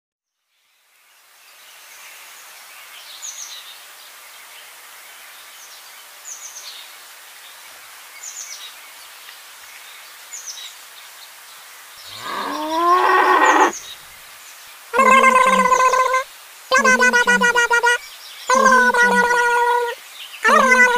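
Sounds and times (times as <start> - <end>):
small birds chirping: 7.5 - 20.9
cow mooing: 12.1 - 13.8.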